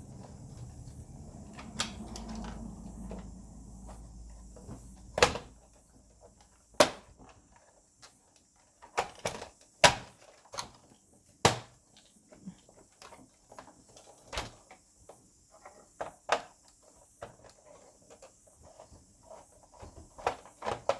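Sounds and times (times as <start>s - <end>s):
plastic parts clicking and knocking: 4.6s - 14.8s, 15.6s - 20.9s.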